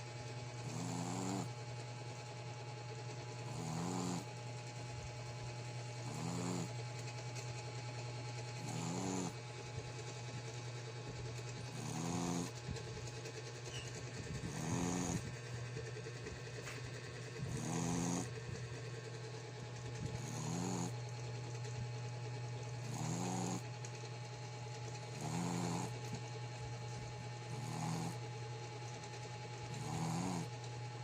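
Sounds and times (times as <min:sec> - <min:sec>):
dog snoring: 0:00.6 - 0:01.8, 0:03.4 - 0:04.4, 0:05.9 - 0:07.5, 0:08.5 - 0:09.4, 0:11.5 - 0:12.6, 0:13.7 - 0:15.4, 0:16.6 - 0:18.4, 0:20.0 - 0:21.0, 0:22.7 - 0:23.8, 0:25.0 - 0:28.4, 0:29.0 - 0:30.6.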